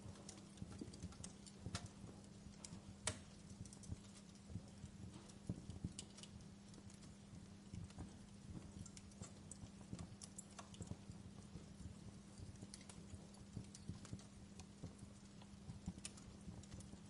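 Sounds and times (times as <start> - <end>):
faint low hum: 0.0 - 17.0
wood fire crackling: 0.0 - 17.0.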